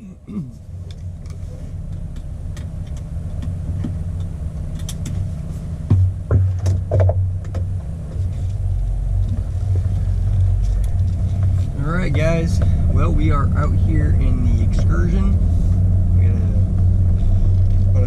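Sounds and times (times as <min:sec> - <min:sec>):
engine drone inside cab: 0:00.0 - 0:18.0
sharp clicks and knocks: 0:00.9 - 0:05.3, 0:05.9 - 0:08.6.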